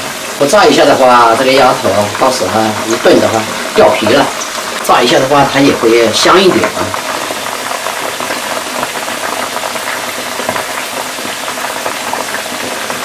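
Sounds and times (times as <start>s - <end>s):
frying sizzle with crackling pops: 0.0s - 13.0s.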